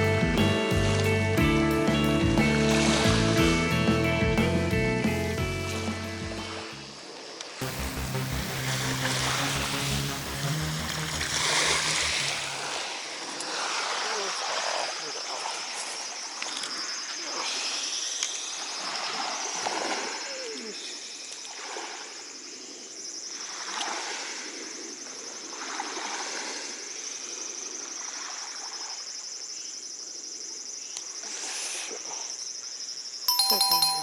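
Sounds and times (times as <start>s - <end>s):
water lapping at shore: 2.6s - 3.6s, 5.7s - 29.4s.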